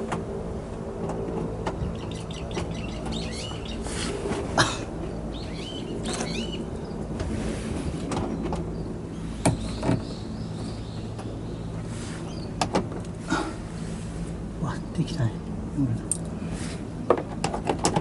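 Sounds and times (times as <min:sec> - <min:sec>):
birds chirping: 0:01.6 - 0:07.2, 0:08.0 - 0:13.9, 0:14.5 - 0:16.6.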